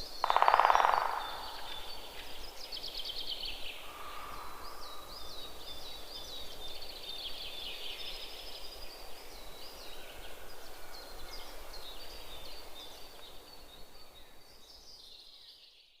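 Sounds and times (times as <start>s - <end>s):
steady background hiss: 0.0s - 15.8s
small birds chirping: 0.0s - 16.0s.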